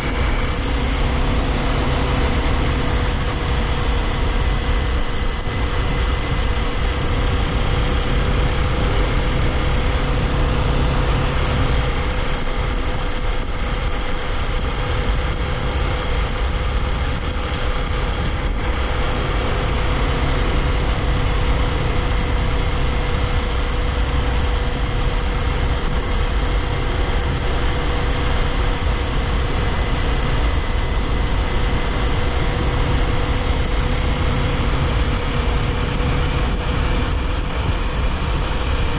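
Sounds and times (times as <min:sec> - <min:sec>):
motorcycle engine cruising: 0:00.0 - 0:38.9
wind and tyre noise: 0:00.0 - 0:38.9.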